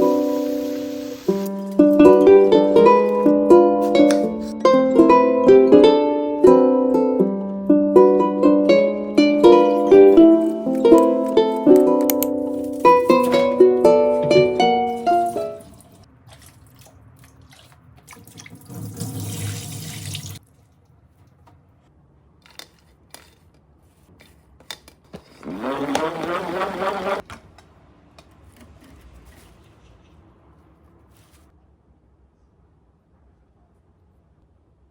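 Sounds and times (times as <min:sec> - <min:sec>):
water running from a tap: 0:00.0 - 0:01.7, 0:15.0 - 0:20.4
ukulele music: 0:00.0 - 0:15.8
container filling with water: 0:15.1 - 0:20.4.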